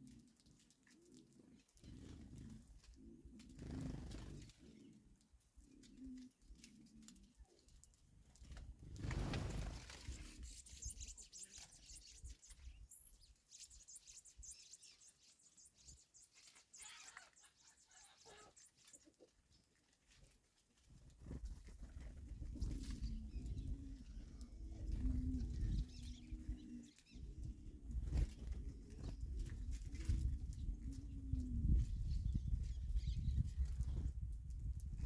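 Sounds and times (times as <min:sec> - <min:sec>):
faint high bird chirps: 0:10.0 - 0:19.3.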